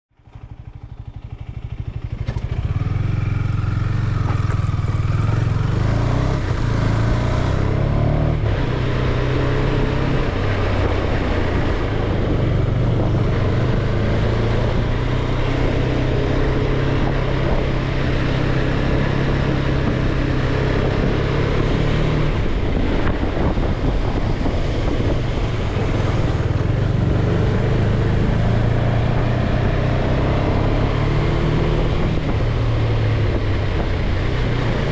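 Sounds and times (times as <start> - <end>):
motorcycle engine running: 0.1 - 34.9
rush of noise: 3.3 - 18.2.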